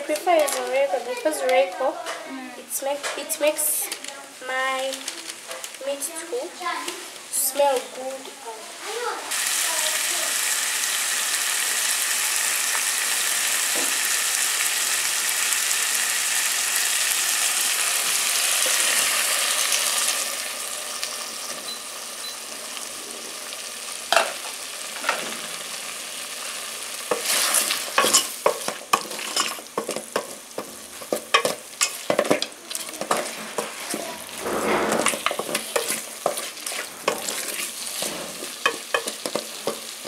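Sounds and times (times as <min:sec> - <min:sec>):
stew sizzling in a pot: 0:00.0 - 0:40.0
wooden spoon scraping a pot: 0:27.1 - 0:40.0.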